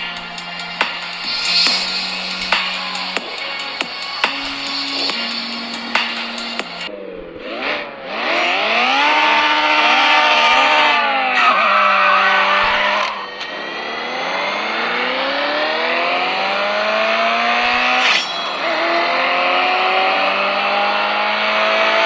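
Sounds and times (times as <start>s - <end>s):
racing car engine through phone speaker: 6.9s - 17.9s.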